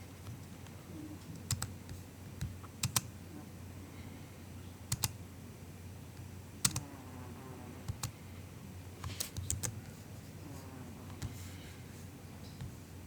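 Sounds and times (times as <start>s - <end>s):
soft keyboard keystrokes: 1.3s - 3.1s, 4.9s - 5.2s, 6.6s - 6.8s, 9.0s - 9.8s.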